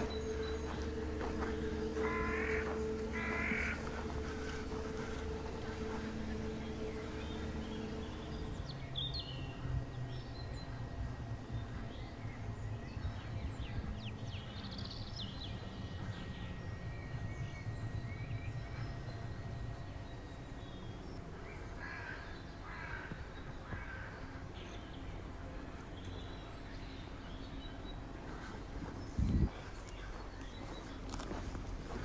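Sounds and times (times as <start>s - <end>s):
steady low rumble: 0.0s - 32.0s
harsh caw-like bird calls: 1.6s - 3.8s, 21.4s - 24.6s.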